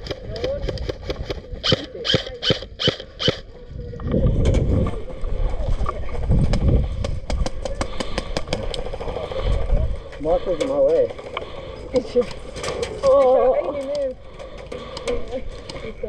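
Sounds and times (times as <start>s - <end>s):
airsoft gun shots: 0.4s - 3.4s
wind rumble on microphone: 2.5s - 10.4s.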